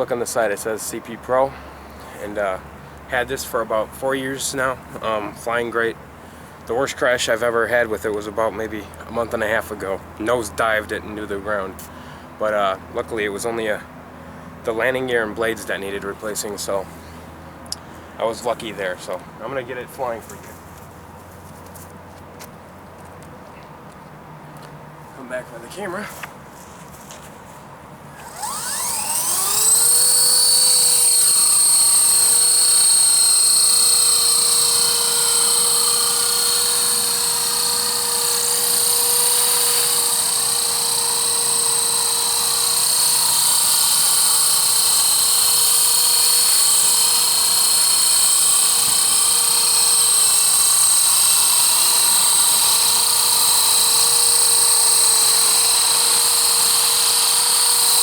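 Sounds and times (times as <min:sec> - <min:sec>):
rc helicopter motor whine: 0:28.1 - 0:58.0.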